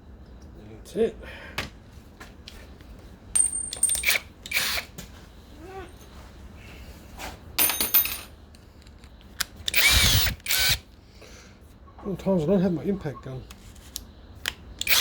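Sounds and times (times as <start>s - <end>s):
metal tools clinking on workbench: 3.4s - 4.2s, 7.6s - 8.3s.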